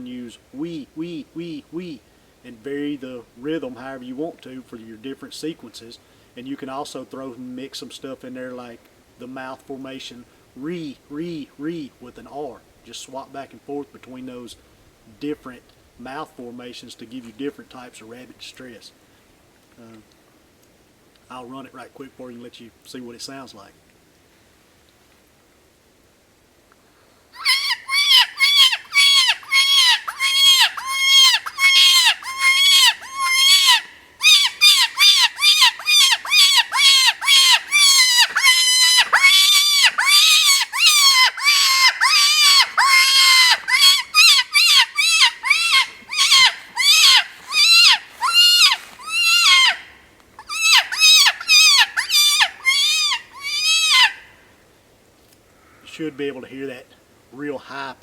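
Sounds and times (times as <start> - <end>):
raspy wailing predator call: 27.4 - 54.4.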